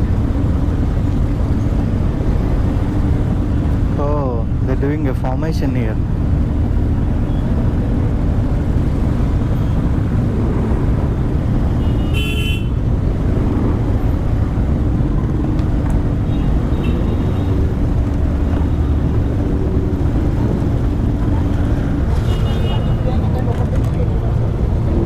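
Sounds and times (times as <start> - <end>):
road noise: 0.0 - 25.0
vehicle horn honk: 11.8 - 12.8.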